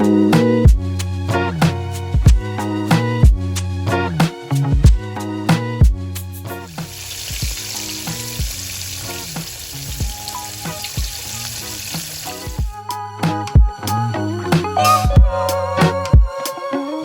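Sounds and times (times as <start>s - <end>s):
background music with a beat: 0.0s - 17.0s
chicken frying in hot oil: 6.7s - 12.7s.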